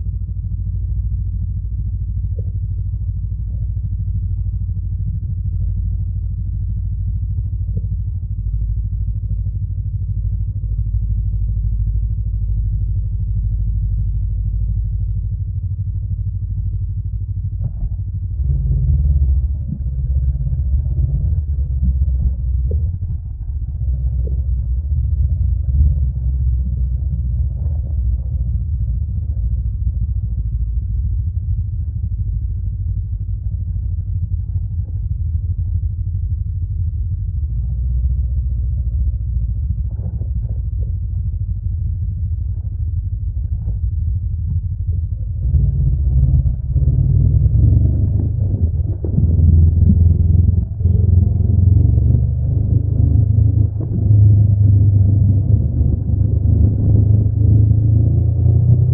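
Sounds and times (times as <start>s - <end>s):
motorcycle engine deep rumble: 0.0s - 58.9s.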